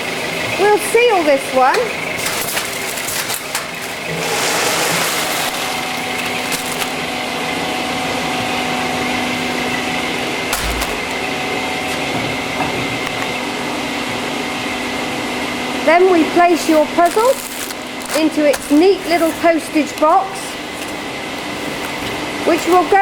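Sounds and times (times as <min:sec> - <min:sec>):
packing machinery humming: 0:00.0 - 0:23.0.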